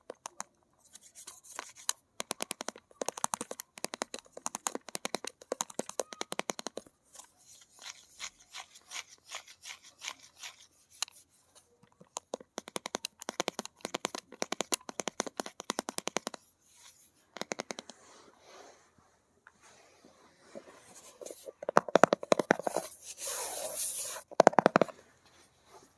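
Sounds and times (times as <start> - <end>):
fingernails scratching: 0.8 - 18.0, 20.6 - 24.9
fingernails tapping on hard objects: 1.6 - 7.0, 12.0 - 16.4, 17.3 - 17.9, 21.2 - 22.9, 24.2 - 24.9.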